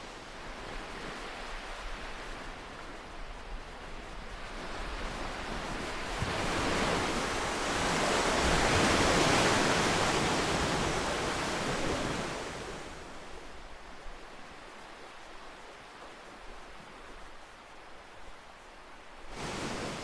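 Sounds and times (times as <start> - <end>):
ocean wave breaking on shore: 5.0 - 13.4, 19.3 - 20.0.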